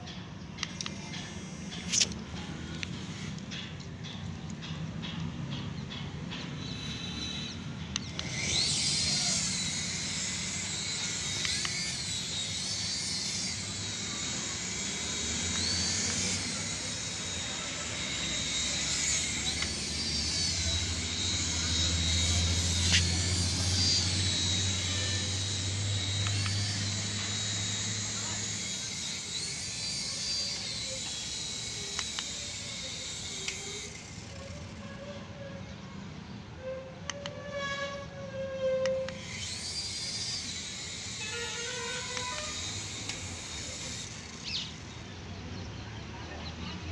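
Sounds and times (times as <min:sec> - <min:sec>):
toy helicopter rotor whirring: 0:00.0 - 0:46.9
low hum: 0:05.2 - 0:35.2.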